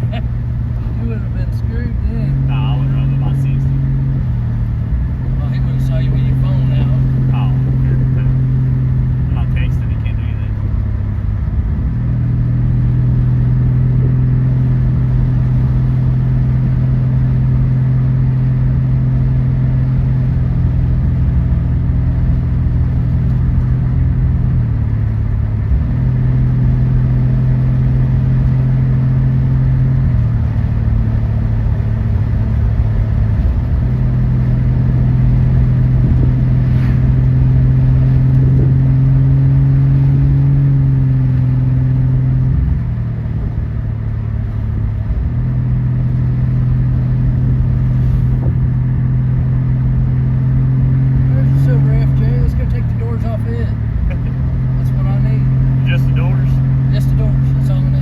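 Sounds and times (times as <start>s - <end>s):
car engine droning: 0.0s - 58.0s.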